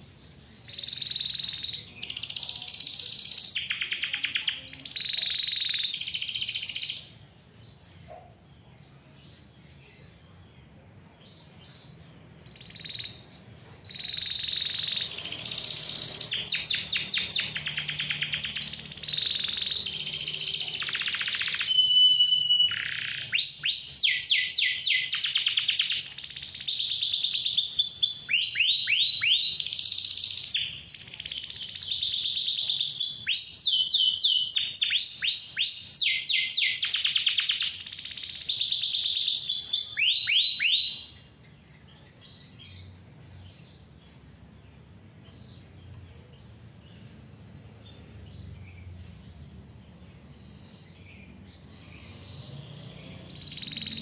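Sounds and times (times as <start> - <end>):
canary singing: 0.0 - 8.2, 11.2 - 54.0.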